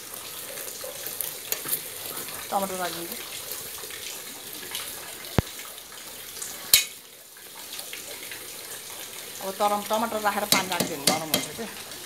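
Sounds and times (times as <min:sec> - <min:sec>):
pork sizzling in a pot: 0:00.0 - 0:12.0
metal ladle stirring: 0:10.5 - 0:11.6.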